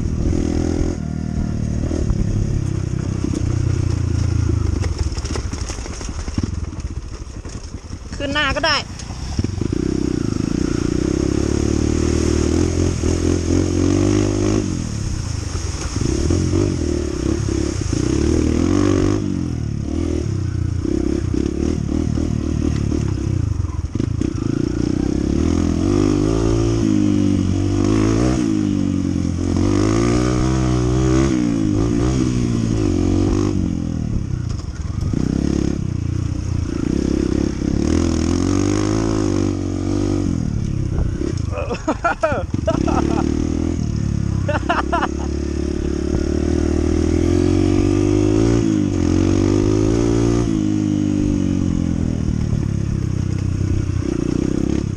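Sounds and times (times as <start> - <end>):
motorcycle engine running: 0.0 - 54.9
bike knocking and rattling: 2.6 - 10.2.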